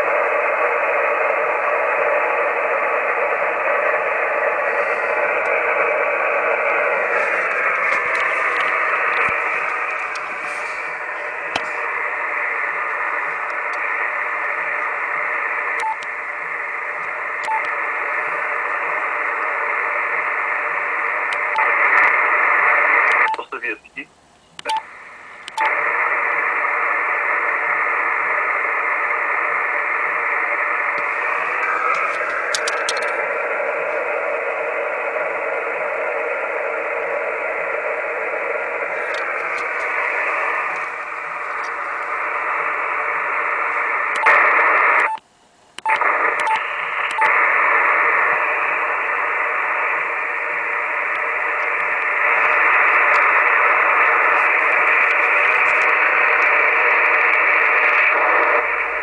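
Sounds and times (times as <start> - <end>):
radio receiver hiss: 0.0 - 59.0
clicks: 30.9 - 33.2, 45.0 - 47.4.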